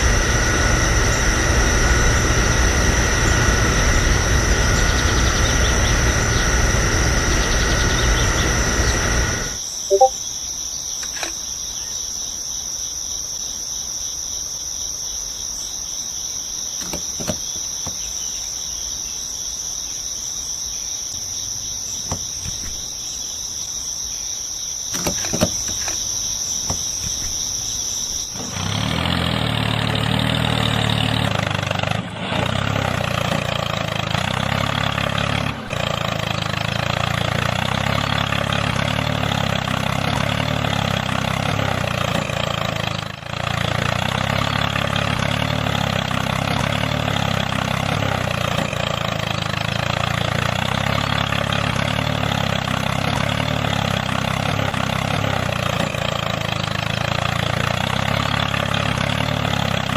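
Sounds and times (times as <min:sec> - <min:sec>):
small motor running: 0:00.0 - 0:10.1, 0:24.9 - 0:59.9
low hum: 0:00.0 - 0:10.2.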